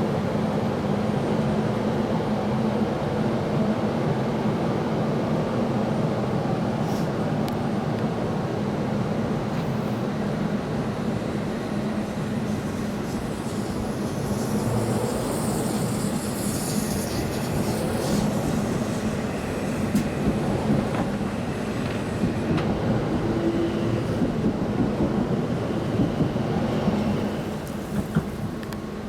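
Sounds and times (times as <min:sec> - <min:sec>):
train rumbling along track: 0:00.0 - 0:29.0.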